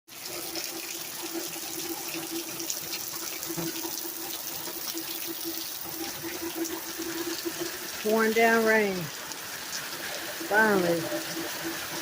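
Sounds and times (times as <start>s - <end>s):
heavy rain pouring: 7.0s - 12.0s
rain drops tapping: 7.3s - 12.0s.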